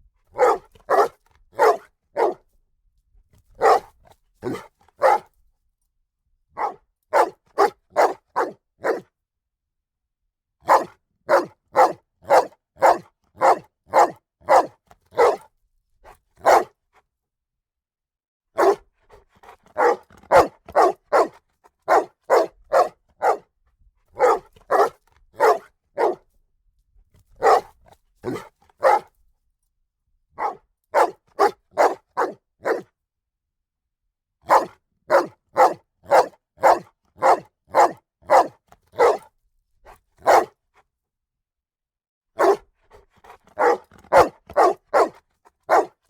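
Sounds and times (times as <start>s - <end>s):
dog barking: 0.3s - 2.4s, 3.6s - 5.3s, 6.6s - 9.1s, 10.6s - 15.5s, 16.4s - 16.8s, 18.6s - 23.5s, 24.2s - 26.3s, 27.4s - 29.1s, 30.4s - 32.9s, 34.4s - 39.3s, 40.2s - 40.6s, 42.4s - 46.0s.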